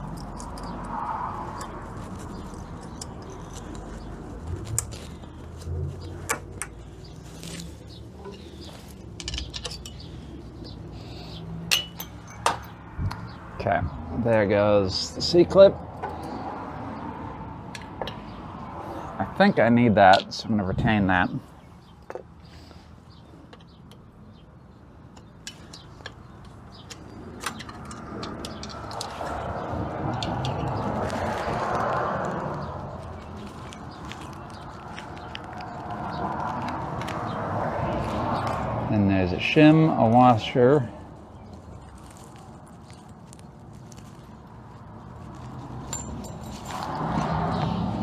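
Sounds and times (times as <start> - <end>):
hand tools clicking on metal: 9.2 - 10.2, 11.7 - 12.7, 45.8 - 47.2.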